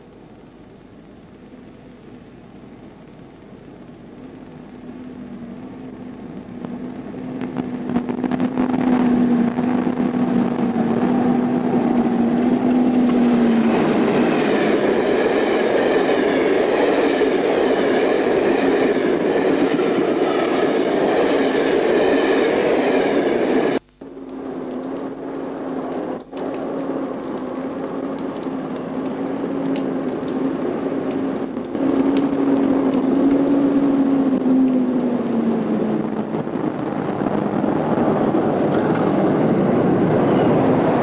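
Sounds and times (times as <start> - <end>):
diesel locomotive engine hum: 3.4 - 41.0
wheels on rails: 5.1 - 41.0.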